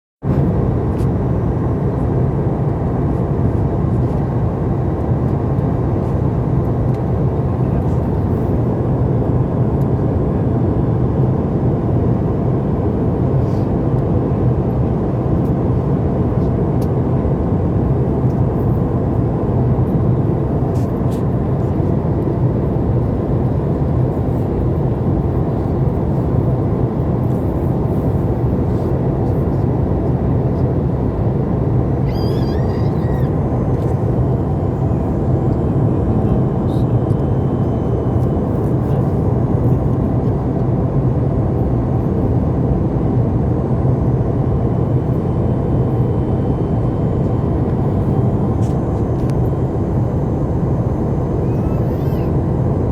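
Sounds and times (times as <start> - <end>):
airplane cabin drone: 0.2 - 52.9.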